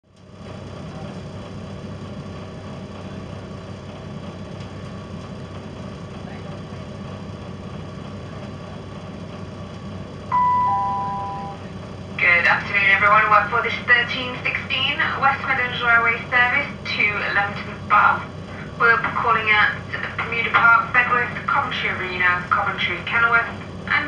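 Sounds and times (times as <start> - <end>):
train diesel engine hum: 0.1 - 24.0
two-note falling chime: 10.3 - 11.6.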